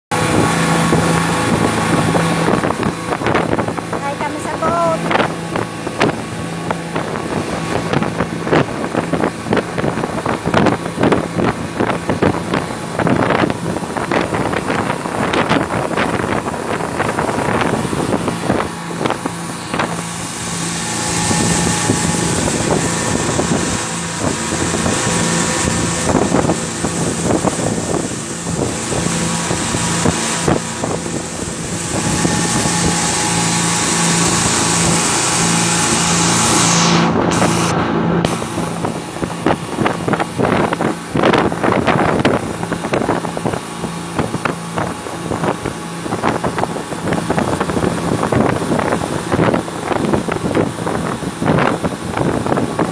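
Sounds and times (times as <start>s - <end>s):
motorboat engine running: 0.0s - 52.9s
water splashing: 0.1s - 52.9s
wind buffeting microphone: 0.1s - 52.9s.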